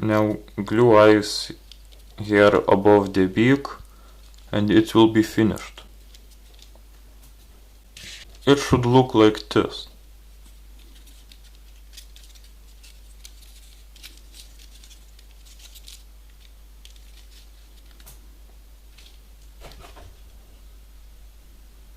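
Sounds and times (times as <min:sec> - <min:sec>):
paper model ticks and rustles: 0:01.4 - 0:04.6, 0:05.5 - 0:06.8, 0:10.4 - 0:18.2.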